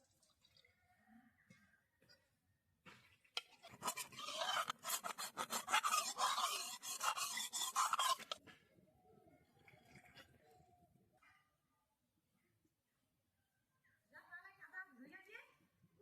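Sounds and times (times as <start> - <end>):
harsh rasping scrape: 3.6 - 8.4.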